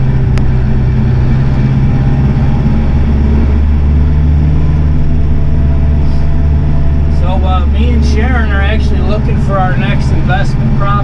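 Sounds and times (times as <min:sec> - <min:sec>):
vehicle engine humming inside cab: 0:00.0 - 0:11.0.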